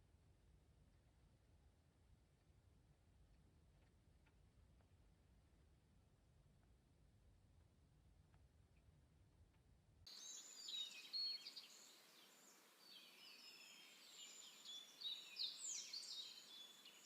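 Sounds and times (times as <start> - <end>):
faint outdoor hiss: 0.0 - 17.0
small birds chirping and singing: 10.1 - 17.0.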